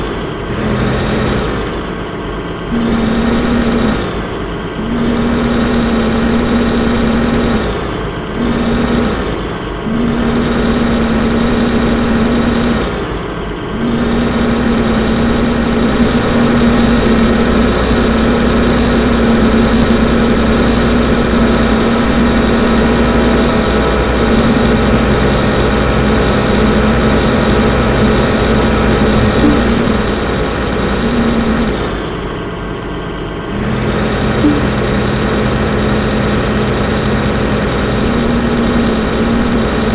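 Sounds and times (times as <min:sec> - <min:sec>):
excavator engine droning: 0:00.0 - 0:39.9.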